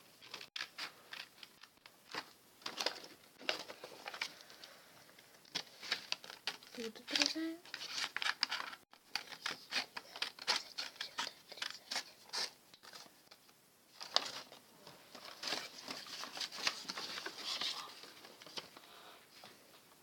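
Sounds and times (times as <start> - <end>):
paper rustling: 0.2 - 19.6
scissors snipping paper: 5.5 - 12.6.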